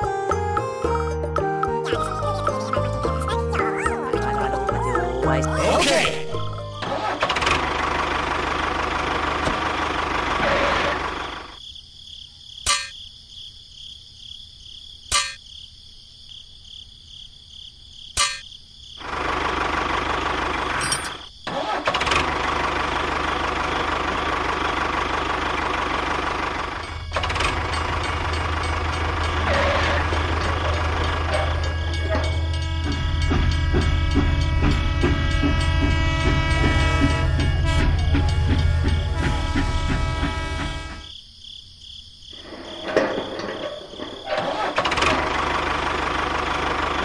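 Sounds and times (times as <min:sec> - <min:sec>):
tractor engine running: 0:00.0 - 0:11.6, 0:19.0 - 0:41.1, 0:42.4 - 0:47.0.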